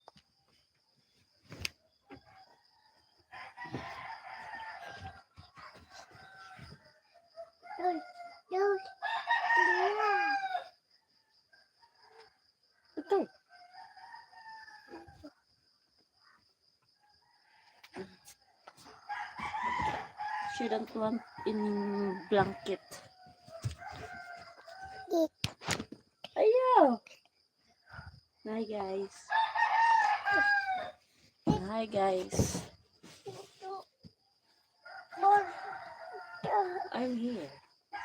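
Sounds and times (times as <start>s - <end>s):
roosters crowing: 3.3s - 6.8s, 9.0s - 10.8s, 18.9s - 25.1s, 29.3s - 31.0s, 34.8s - 38.0s.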